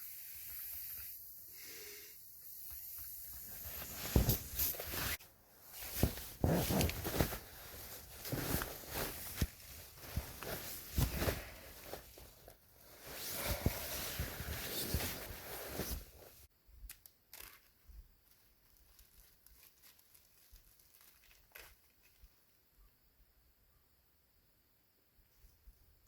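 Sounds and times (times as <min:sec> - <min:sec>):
rustling and crinkling handling noise: 0:03.4 - 0:16.5, 0:17.3 - 0:22.6.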